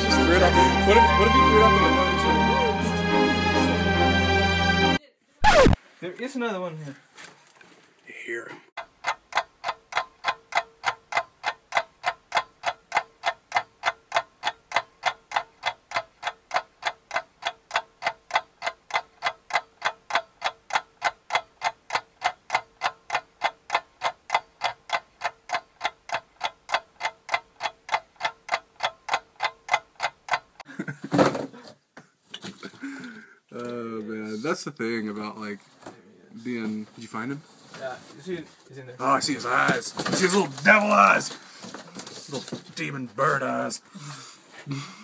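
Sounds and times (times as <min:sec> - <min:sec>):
rapid even ticking: 0:08.8 - 0:30.7, 0:39.0 - 0:41.6.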